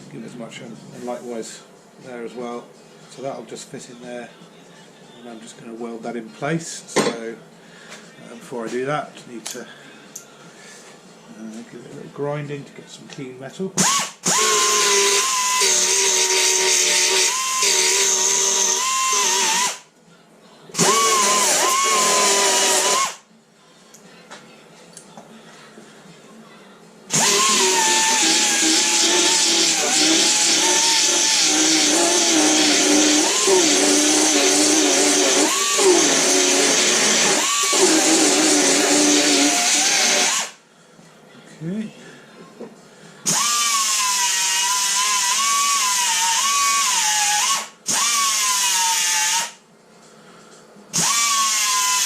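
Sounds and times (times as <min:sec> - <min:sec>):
angle grinder grinding metal: 0:13.8 - 0:19.8, 0:20.8 - 0:23.2, 0:27.1 - 0:40.5.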